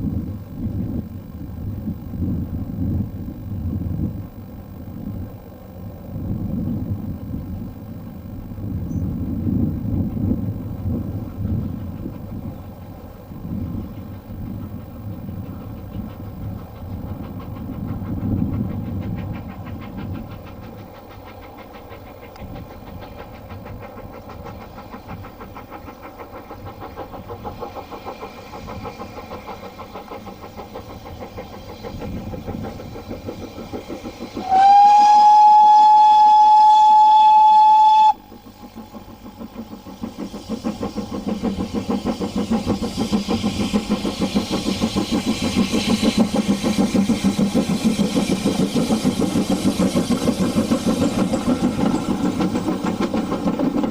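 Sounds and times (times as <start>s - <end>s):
train rumble: 0.0s - 53.9s
railway whistle blowing: 34.4s - 38.3s.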